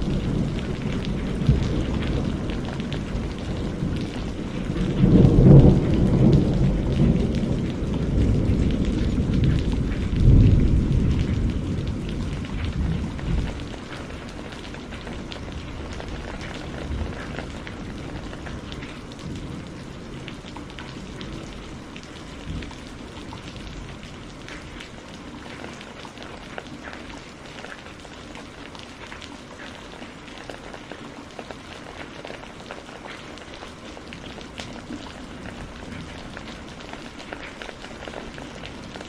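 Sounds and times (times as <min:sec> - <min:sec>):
thunder rumble: 0:00.0 - 0:24.8
rain drops splashing: 0:00.0 - 0:39.0.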